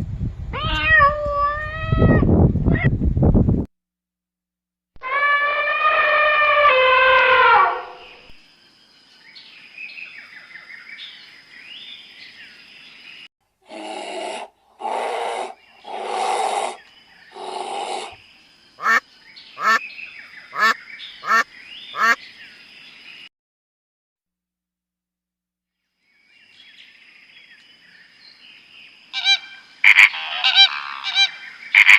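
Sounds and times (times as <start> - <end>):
harsh animal calls: 5.0 - 8.3, 13.7 - 18.2, 18.8 - 19.0, 20.5 - 22.2, 29.1 - 31.9
long pitched animal call: 5.0 - 8.3, 13.7 - 18.2, 29.2 - 31.9.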